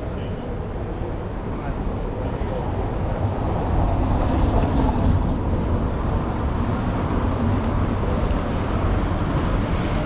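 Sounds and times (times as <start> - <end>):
city street noise: 0.0 - 10.0
wind buffeting microphone: 2.7 - 10.0.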